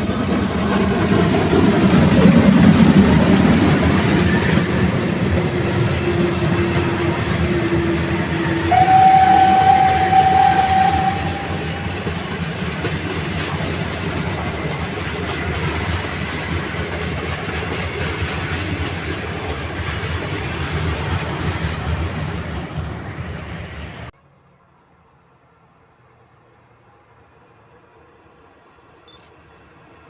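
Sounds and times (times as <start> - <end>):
train rumbling past: 0.0 - 24.6
train horn two notes: 8.5 - 12.3.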